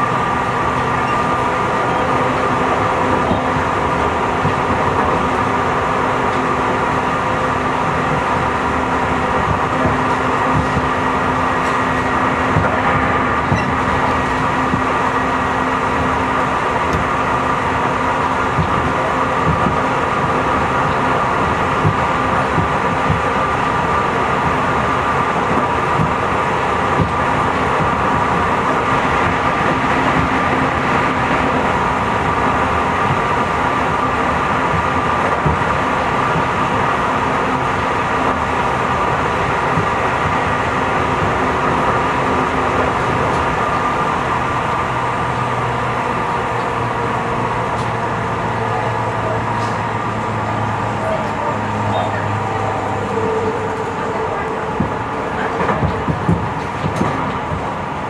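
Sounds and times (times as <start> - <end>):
electric train whine: 0.0 - 58.0
train wheels rumbling on rail: 0.0 - 58.0.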